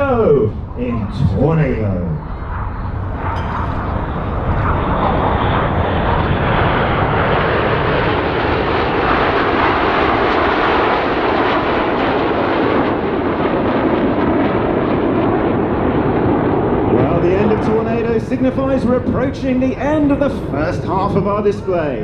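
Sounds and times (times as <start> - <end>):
jets roaring past: 0.0 - 22.0.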